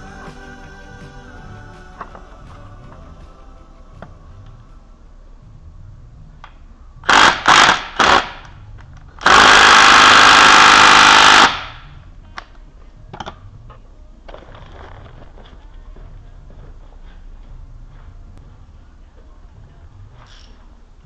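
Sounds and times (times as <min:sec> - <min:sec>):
power tool bursts: 0:07.1 - 0:08.4, 0:09.2 - 0:11.8.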